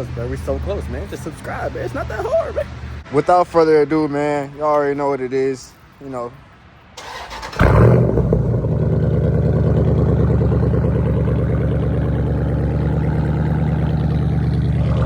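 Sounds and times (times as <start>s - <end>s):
car engine starting and idling: 7.0s - 15.0s.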